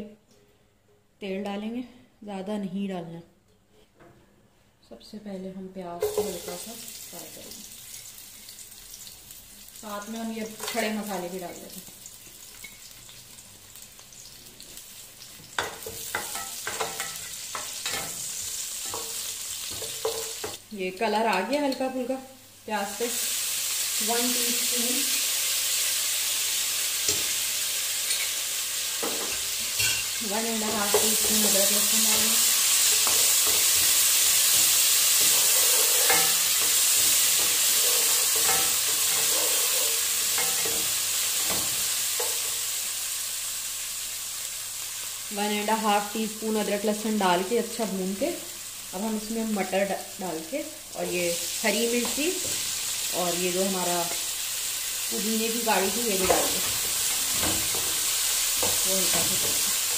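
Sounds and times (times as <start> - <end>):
onions sizzling in hot oil: 6.0 - 59.9
spatula scraping a metal pot: 35.2 - 40.8.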